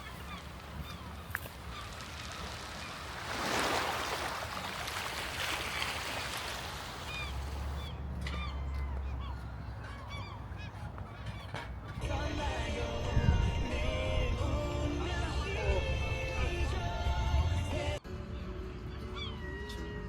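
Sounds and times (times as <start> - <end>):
birds calling: 0.0 - 3.6, 5.4 - 18.0
low rumble: 12.0 - 18.0.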